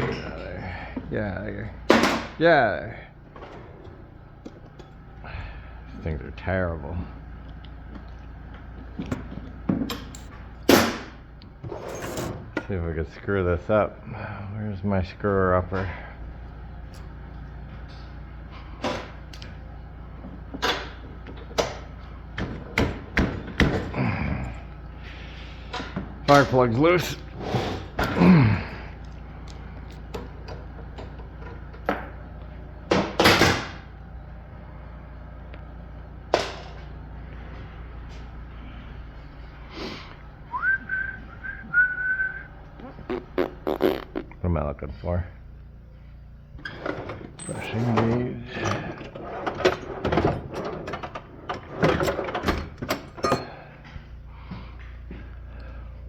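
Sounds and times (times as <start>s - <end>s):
steady low hum: 0.0s - 56.0s
tool clatter: 11.7s - 12.8s, 46.6s - 53.6s.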